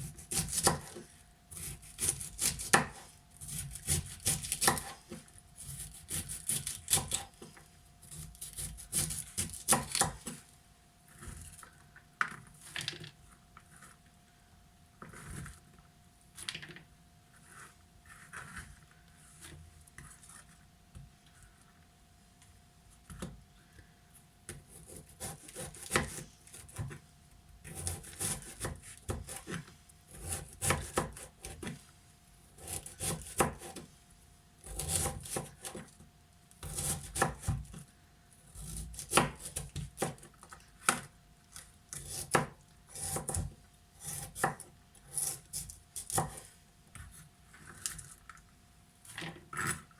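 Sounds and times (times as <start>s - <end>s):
knife chopping on cutting board: 0.0s - 7.3s, 8.1s - 10.4s, 24.6s - 27.0s, 27.6s - 31.8s, 32.6s - 33.8s, 34.6s - 35.9s, 36.6s - 37.8s, 38.6s - 41.1s, 42.0s - 46.4s.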